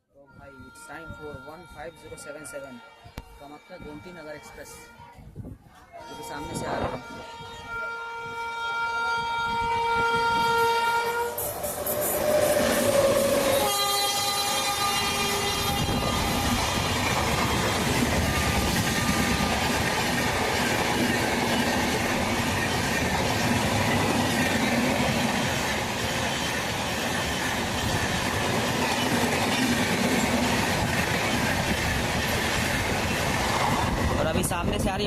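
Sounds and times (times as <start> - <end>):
train horn: 0.2 - 5.3, 6.0 - 20.4
train coaches rushing past: 6.1 - 35.0.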